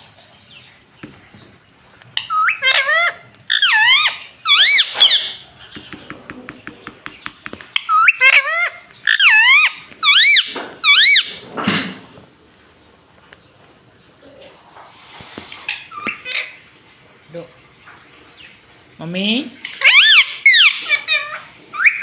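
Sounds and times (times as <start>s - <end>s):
parrot squawking: 2.2s - 6.2s, 7.4s - 11.5s, 15.7s - 16.6s, 19.6s - 22.0s
parrot clicking: 3.5s - 11.3s.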